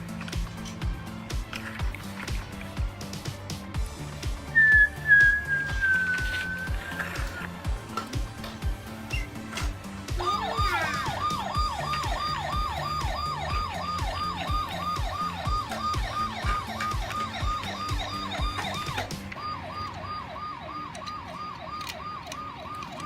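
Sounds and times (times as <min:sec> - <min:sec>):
background music with steady beat: 0:00.0 - 0:23.0
electronic police siren wailing: 0:04.6 - 0:07.6, 0:09.5 - 0:23.0.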